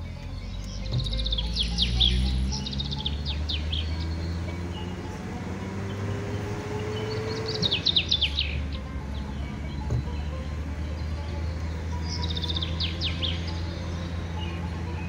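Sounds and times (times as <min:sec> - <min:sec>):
soft background music: 0:00.0 - 0:15.0
high falling bird chirps: 0:00.4 - 0:09.3.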